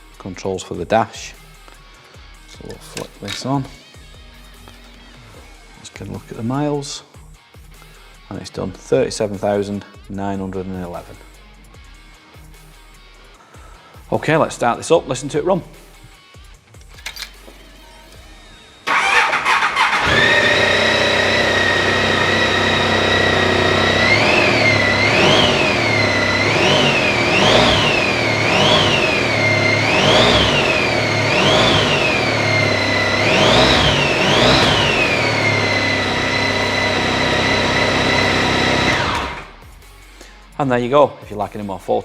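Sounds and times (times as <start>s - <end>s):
electric starter cranking: 2.9s - 3.4s, 16.9s - 17.5s, 18.4s - 39.6s
motorcycle engine idling and revving: 18.1s - 39.8s.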